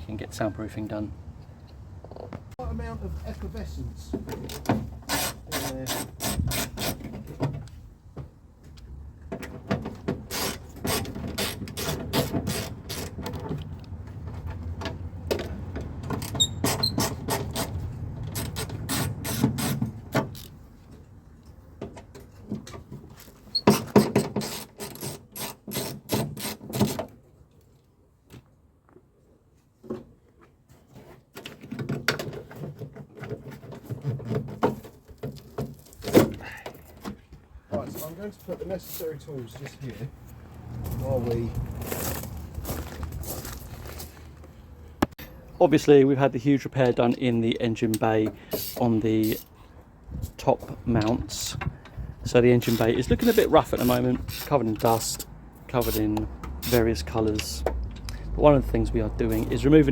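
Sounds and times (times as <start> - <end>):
hand tools clicking and rattling: 10.1 - 20.6, 48.5 - 49.6, 52.6 - 58.2.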